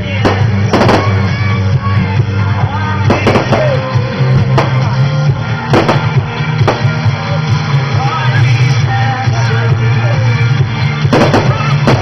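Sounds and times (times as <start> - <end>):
loud music: 0.0 - 12.0
fireworks bangs: 0.1 - 1.4, 3.0 - 5.0, 5.6 - 7.1, 11.1 - 12.0.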